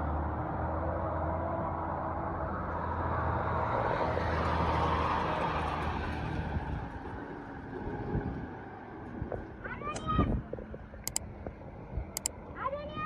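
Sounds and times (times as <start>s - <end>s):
passing vehicle road noise: 0.0s - 9.2s.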